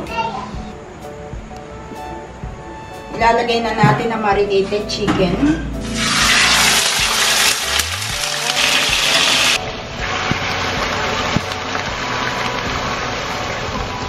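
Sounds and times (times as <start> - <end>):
chicken sizzling in a frying pan: 5.8 - 14.0.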